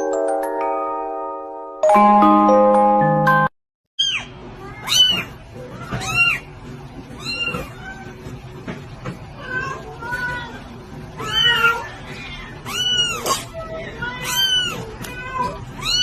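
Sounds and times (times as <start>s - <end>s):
kitten meowing: 4.0s - 6.4s, 11.2s - 16.0s.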